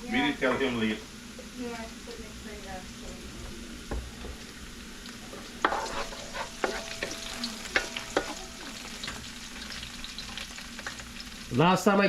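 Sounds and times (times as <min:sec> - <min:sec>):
food sizzling in hot oil: 0:00.0 - 0:12.0
spoon knocking against pot: 0:06.6 - 0:09.2.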